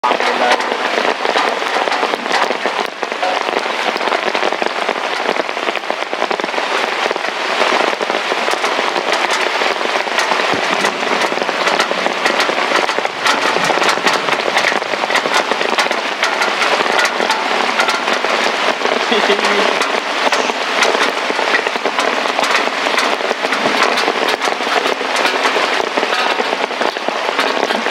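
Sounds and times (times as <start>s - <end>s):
heavy rain falling: 0.0s - 27.9s
raindrop impacts crackling: 0.0s - 27.9s.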